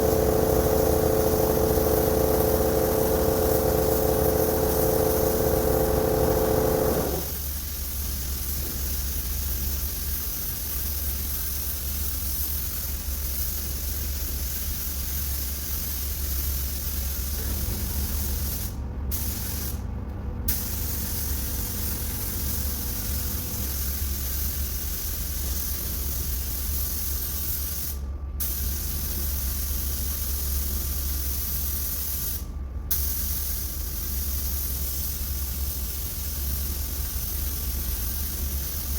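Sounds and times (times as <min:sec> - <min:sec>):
loud droning tone: 0:00.0 - 0:07.4, 0:17.5 - 0:23.9
steady low hum: 0:00.0 - 0:07.6, 0:15.2 - 0:38.9
spray gun hissing: 0:00.0 - 0:07.8, 0:15.1 - 0:19.9, 0:20.5 - 0:38.9.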